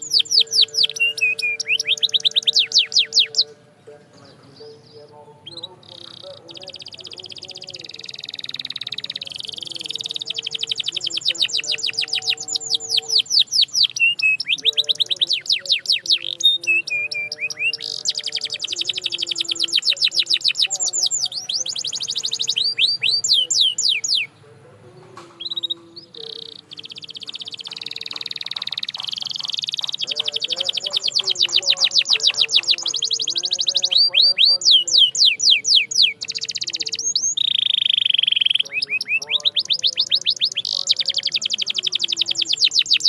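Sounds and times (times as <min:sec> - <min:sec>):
canary singing rolling trills: 0:00.0 - 0:43.0.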